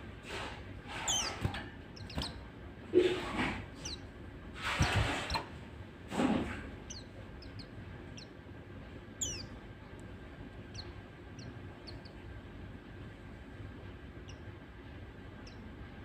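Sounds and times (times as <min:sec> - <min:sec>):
bird chirps sweeping downward: 0:09.2 - 0:09.6.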